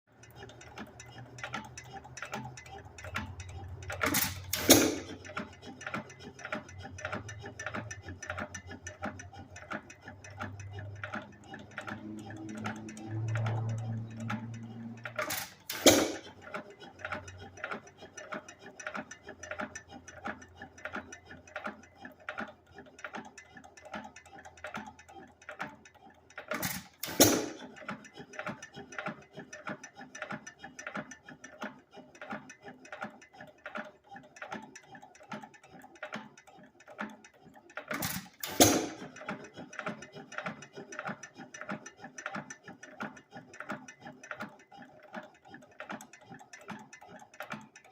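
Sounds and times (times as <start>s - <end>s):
engine power strokes: 0.2s - 18.2s
valve gear clicking: 0.2s - 21.8s, 24.1s - 30.9s, 35.4s - 44.6s.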